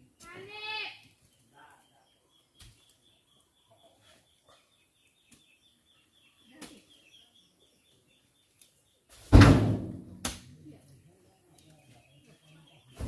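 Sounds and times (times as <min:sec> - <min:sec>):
heavy thud with low ringing: 0:09.3 - 0:10.3.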